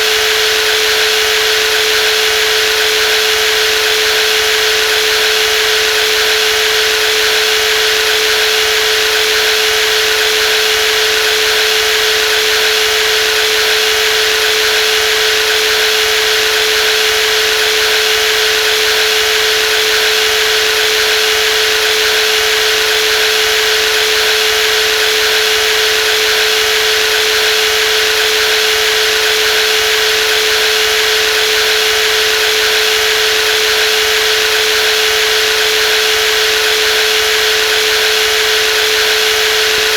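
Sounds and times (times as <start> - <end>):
jigsaw running: 0.0 - 39.9.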